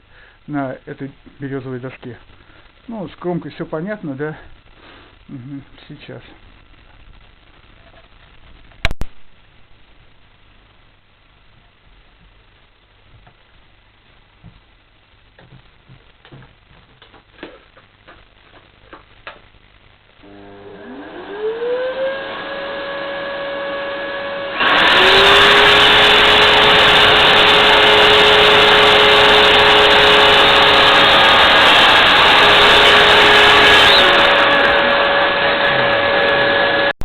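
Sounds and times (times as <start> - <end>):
electric wood router whining: 20.2 - 37.0
vacuum cleaner whining: 20.2 - 37.0.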